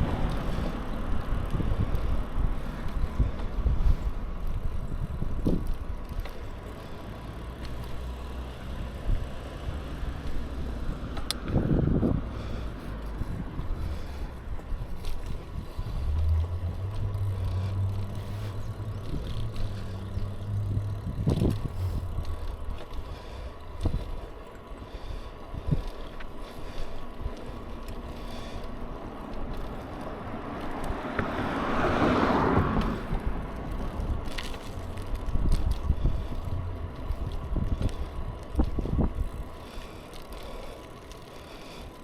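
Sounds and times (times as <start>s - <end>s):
bicycle riding rush: 0.0s - 42.0s
vehicle passing: 0.0s - 42.0s
wind on microphone: 9.0s - 23.1s, 30.9s - 39.6s
light clicks: 11.1s - 11.6s.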